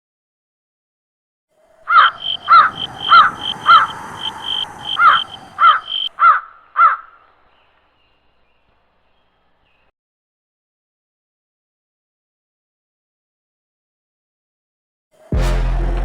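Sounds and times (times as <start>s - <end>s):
crow cawing: 1.7s - 7.7s.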